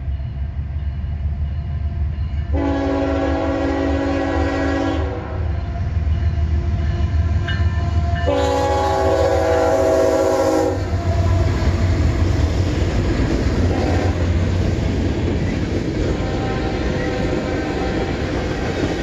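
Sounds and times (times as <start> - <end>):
locomotive air horn blast: 2.5 - 5.5, 8.2 - 11.6, 13.7 - 14.3, 16.1 - 18.3.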